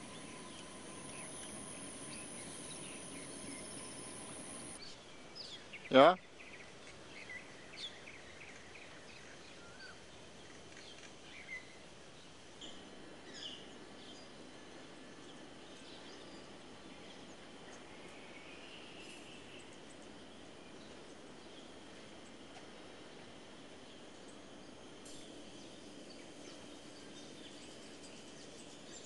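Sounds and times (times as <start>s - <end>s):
small birds chirping: 0.0s - 9.9s
outdoor background hiss: 0.0s - 29.0s.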